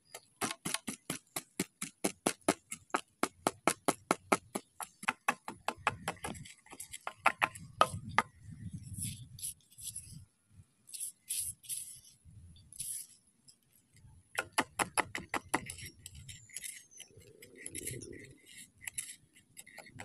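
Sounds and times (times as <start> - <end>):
wooden pestle pounding in mortar: 0.4 - 6.4, 14.4 - 15.7.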